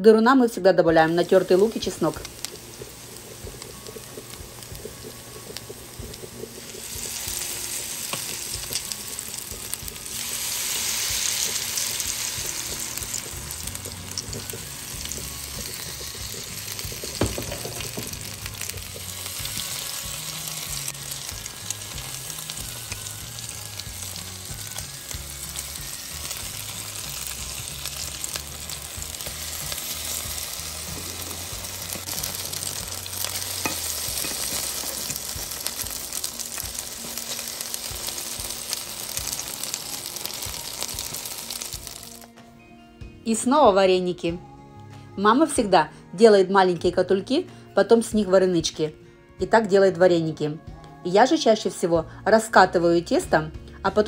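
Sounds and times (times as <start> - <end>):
pancakes sizzling in oil: 1.1 - 42.3
metal fork knocking on pan: 17.1 - 18.2.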